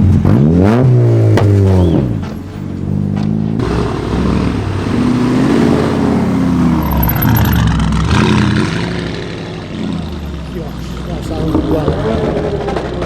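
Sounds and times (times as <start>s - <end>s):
exhaust and road noise rush: 0.0s - 13.0s
car engine driving past: 3.6s - 13.0s.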